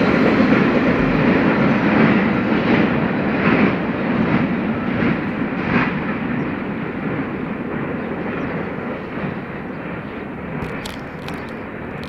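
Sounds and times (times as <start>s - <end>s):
train wheels rumbling on rails: 0.0s - 12.0s
sharp clicks: 10.6s - 12.0s.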